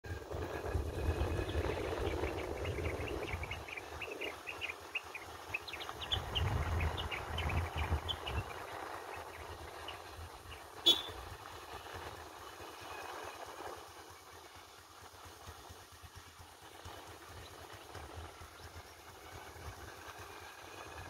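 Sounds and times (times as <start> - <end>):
birds chirping: 0.6 - 11.2.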